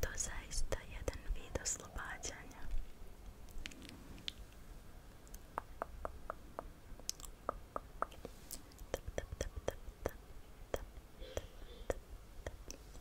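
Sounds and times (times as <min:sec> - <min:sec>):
soft wet mouth clicks: 0:05.2 - 0:11.0, 0:11.9 - 0:12.8.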